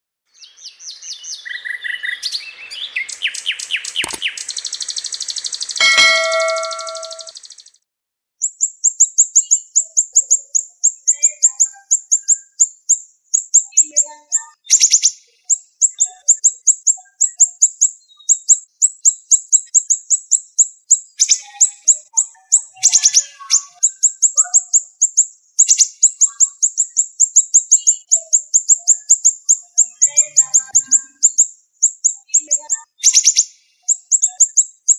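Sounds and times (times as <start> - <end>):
songbird chirping rapidly: 0.3 - 7.7, 8.4 - 34.9
chime: 5.8 - 7.3.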